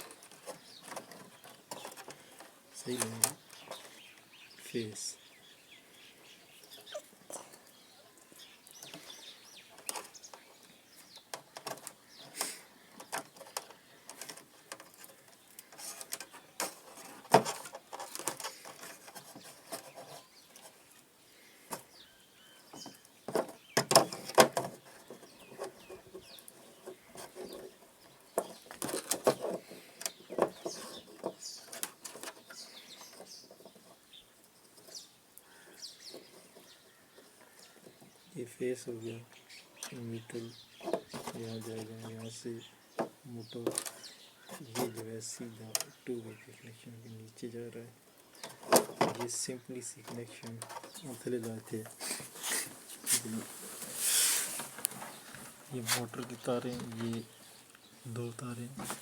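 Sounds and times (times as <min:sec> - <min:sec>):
birds chirping: 0:00.0 - 0:59.0
clicks and knocks of hand work: 0:22.7 - 0:34.0.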